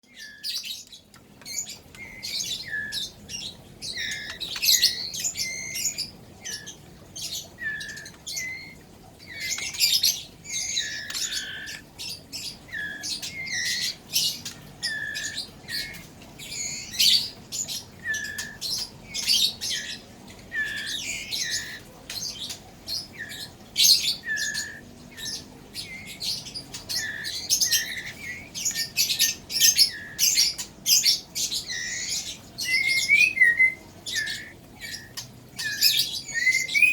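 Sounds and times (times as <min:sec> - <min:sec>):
bird chick begging squawks: 0:04.0 - 0:05.9, 0:10.5 - 0:11.9.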